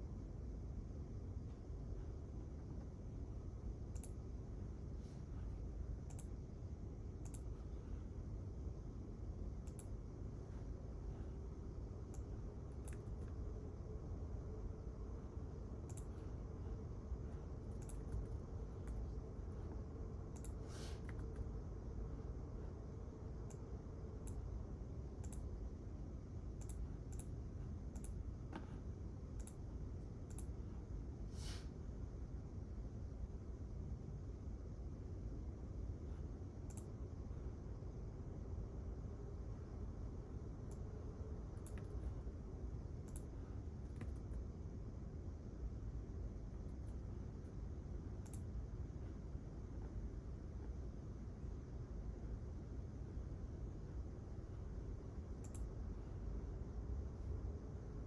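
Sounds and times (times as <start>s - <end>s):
steady low hum: 0.0s - 58.0s
sharp small clicks: 3.9s - 4.2s, 6.0s - 6.4s, 7.2s - 7.5s, 9.6s - 10.0s, 12.1s - 13.4s, 15.8s - 16.2s, 17.7s - 19.0s, 20.3s - 21.5s, 25.2s - 25.5s, 26.6s - 28.2s, 29.3s - 29.6s, 30.2s - 30.6s, 36.6s - 36.9s, 43.0s - 44.4s, 48.2s - 48.5s, 55.4s - 55.7s
keyboard typing clicks: 17.7s - 19.0s.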